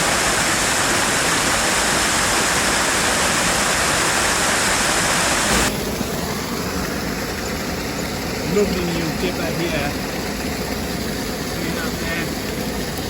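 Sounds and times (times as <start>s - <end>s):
fast-flowing stream rushing: 0.0s - 9.4s.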